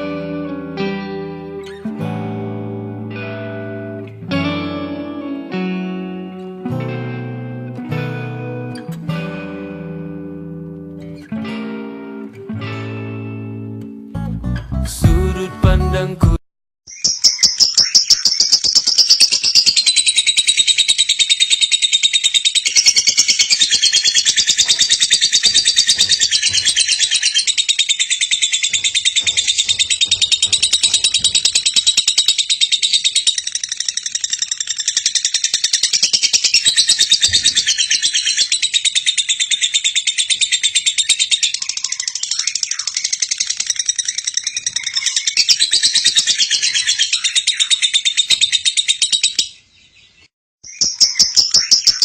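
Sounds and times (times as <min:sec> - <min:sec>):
lovebird chattering trill: 0:16.9 - 0:49.5, 0:50.7 - 0:52.0.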